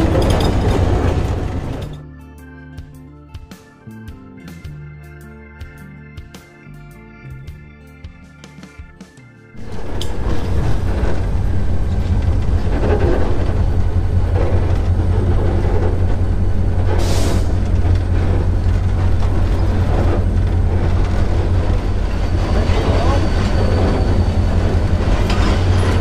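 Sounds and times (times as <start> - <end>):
rail noise: 0.0 - 2.0, 9.6 - 26.0
diesel engine hum: 0.0 - 2.6, 9.6 - 26.0.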